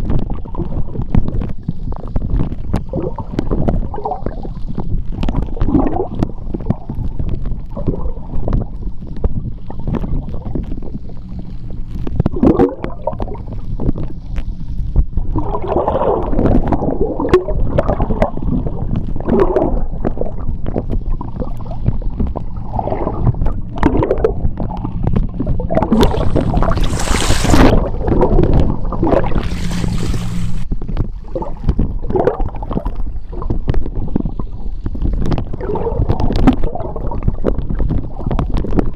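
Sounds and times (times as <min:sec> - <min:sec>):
underwater water surges: 0:19.2 - 0:30.7
hissing rush of bubbles: 0:25.7 - 0:30.7.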